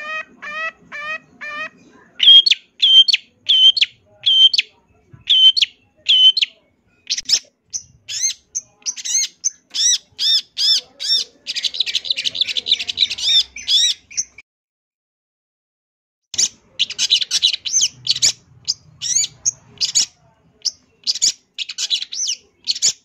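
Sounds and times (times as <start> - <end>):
shrike singing: 0.0 - 14.4.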